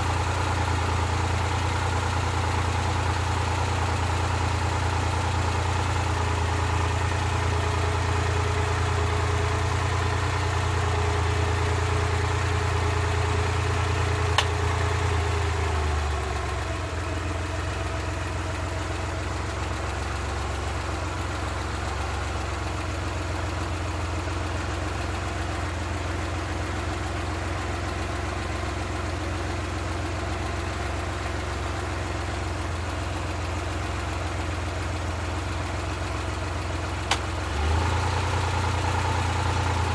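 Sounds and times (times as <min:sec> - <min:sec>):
engine idling: 0:00.0 - 0:39.9
sharp click: 0:14.4 - 0:14.6, 0:37.1 - 0:37.3.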